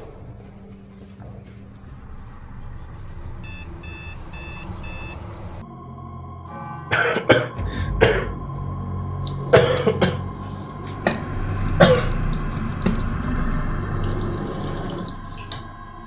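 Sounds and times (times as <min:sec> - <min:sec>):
person coughing: 0:06.8 - 0:08.4, 0:09.3 - 0:12.4
person clearing throat: 0:06.9 - 0:08.4, 0:09.3 - 0:12.4.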